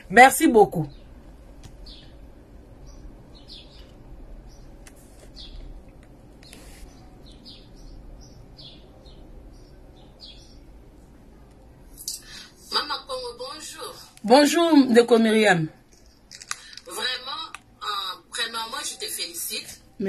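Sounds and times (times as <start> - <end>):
low steady hum: 0.0 - 20.0
bird chirping faintly: 0.8 - 12.2.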